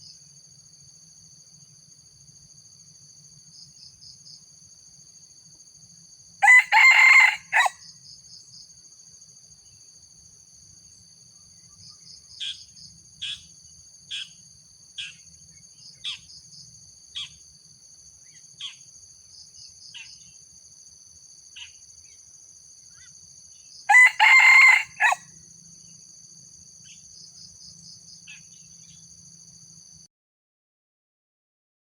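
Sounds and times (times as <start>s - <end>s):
insect chorus: 0.0s - 30.1s
rooster crowing: 6.4s - 7.8s, 23.9s - 25.3s.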